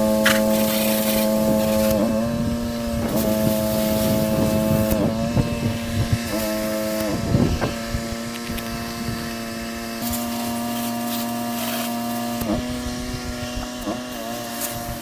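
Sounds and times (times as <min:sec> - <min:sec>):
pressure washer motor drone: 0:00.0 - 0:15.0
water spraying hiss: 0:00.0 - 0:15.0.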